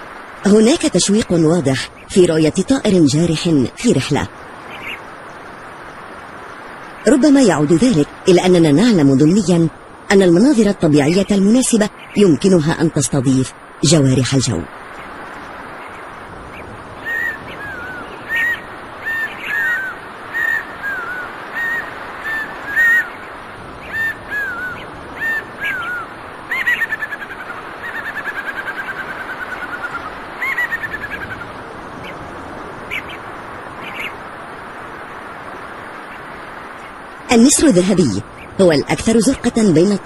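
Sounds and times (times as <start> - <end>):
steady background hiss: 0.0 - 40.0
bird calling high calls: 4.6 - 5.1, 14.5 - 32.2, 32.8 - 34.2.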